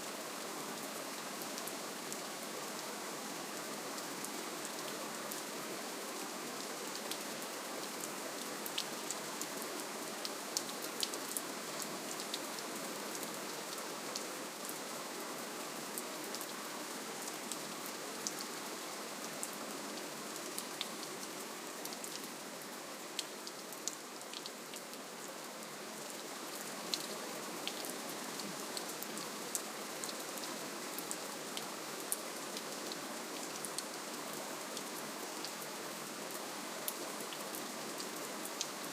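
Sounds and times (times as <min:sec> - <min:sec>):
gentle rainfall hiss: 0:00.0 - 0:38.9
raindrops ticking on surfaces: 0:06.1 - 0:14.9, 0:15.9 - 0:35.6.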